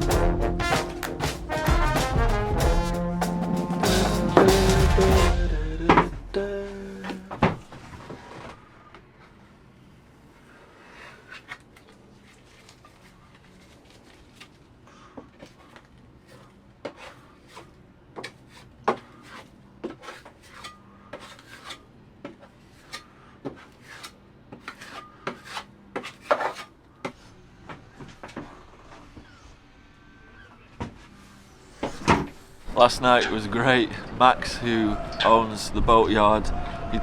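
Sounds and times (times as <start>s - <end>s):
filling knife scraping: 18.3s - 21.8s, 22.6s - 26.7s.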